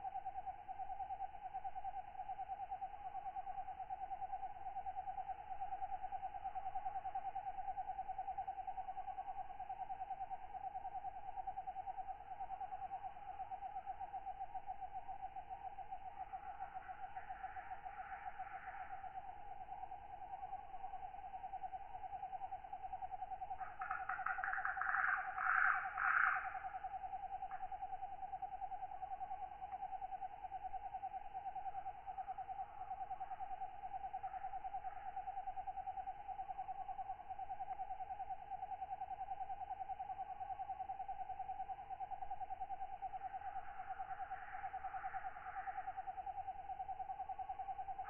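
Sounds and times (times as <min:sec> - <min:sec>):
raspy katydid calls: 0:23.8 - 0:26.7.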